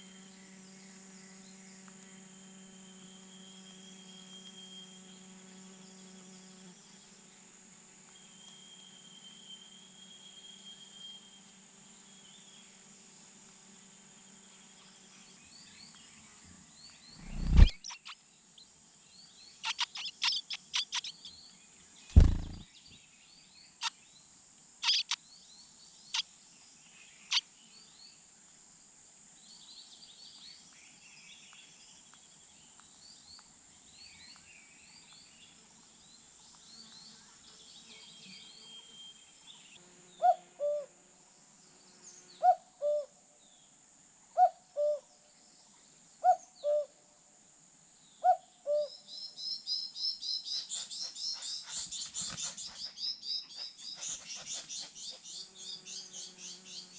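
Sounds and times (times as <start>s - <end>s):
high insect-like whine: 0.0s - 21.5s
nestling bird chirping: 17.2s - 18.2s, 19.6s - 21.3s, 22.1s - 22.6s, 24.8s - 25.2s, 50.2s - 56.9s
loud thumps: 22.1s - 22.6s.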